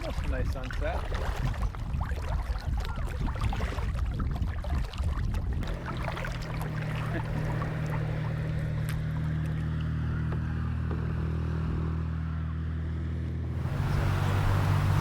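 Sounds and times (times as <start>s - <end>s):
water trickling: 0.0s - 10.0s, 13.6s - 15.0s
paddle splashes: 0.0s - 11.0s, 13.6s - 15.0s
low rumble on microphone: 0.0s - 15.0s.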